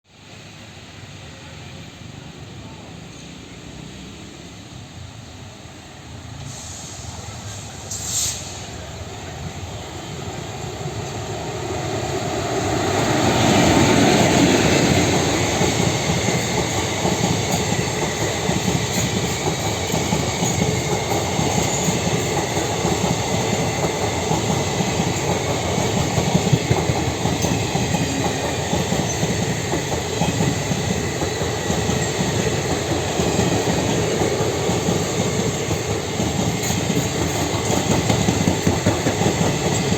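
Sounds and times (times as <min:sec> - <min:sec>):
train rumbling past: 0:00.1 - 0:39.9
wheels clacking over rail joints: 0:12.9 - 0:39.9.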